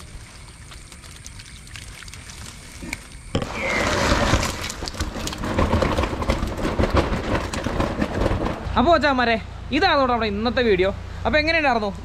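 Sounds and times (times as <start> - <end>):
heavy rain pouring: 3.4 - 8.8.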